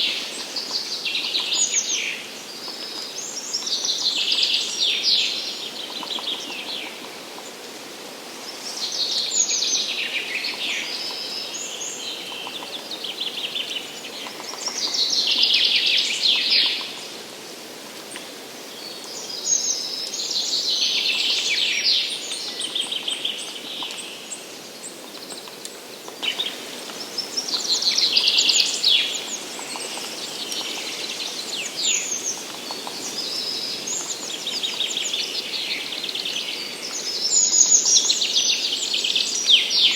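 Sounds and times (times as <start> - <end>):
songbird trilling song: 18.7 - 39.9.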